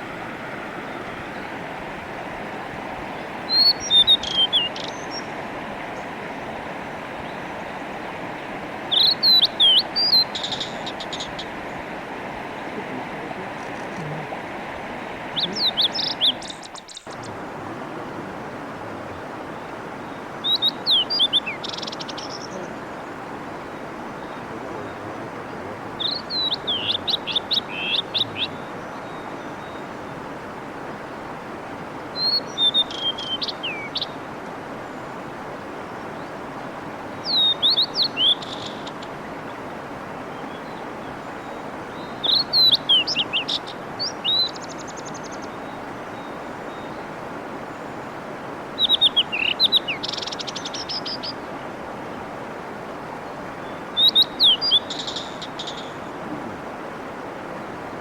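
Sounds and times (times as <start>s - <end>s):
mountain stream rushing: 0.0s - 58.0s
bird singing high whistles: 3.5s - 5.2s, 32.2s - 34.0s.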